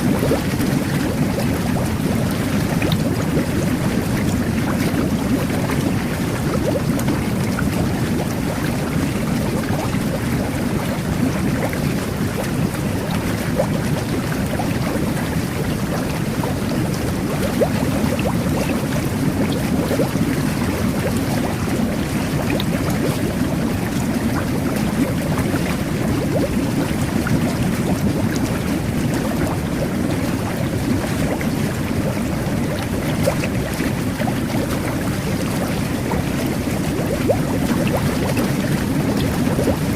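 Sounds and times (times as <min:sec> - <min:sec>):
bubbles bursting crackle: 0:00.0 - 0:39.9
jet bath water churning: 0:00.0 - 0:39.9.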